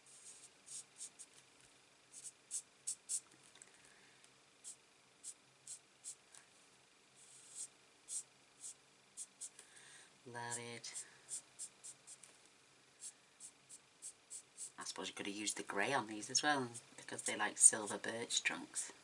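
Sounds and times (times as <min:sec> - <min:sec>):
marker scratching on cardstock: 0:00.1 - 0:01.3, 0:02.1 - 0:03.2, 0:07.2 - 0:09.5, 0:11.3 - 0:12.2, 0:13.0 - 0:14.8.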